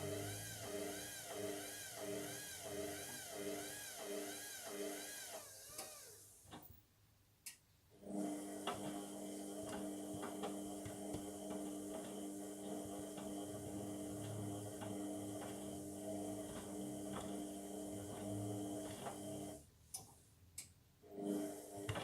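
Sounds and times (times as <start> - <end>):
washing machine drum motor whine: 0.0 - 6.1, 8.2 - 19.6.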